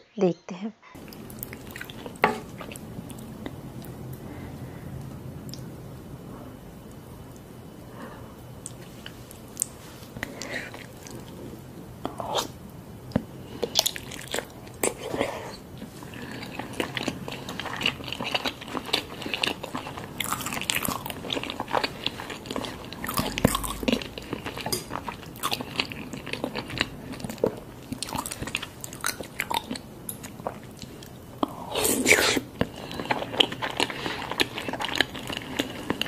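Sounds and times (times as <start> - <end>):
person biting and chewing: 17.7 - 24.6.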